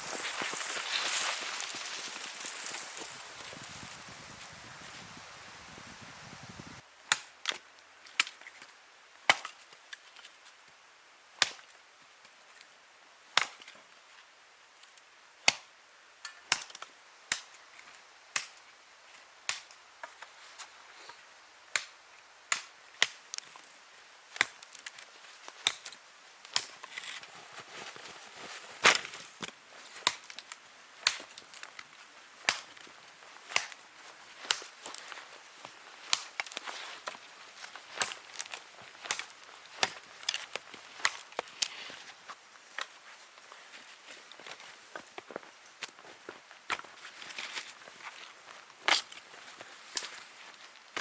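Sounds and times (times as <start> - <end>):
wood being chopped: 32.4 - 32.9, 33.5 - 33.8.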